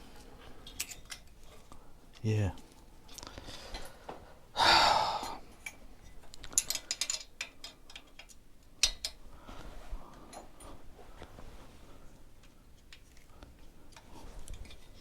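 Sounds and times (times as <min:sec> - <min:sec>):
loud breath out: 0:04.6 - 0:05.4.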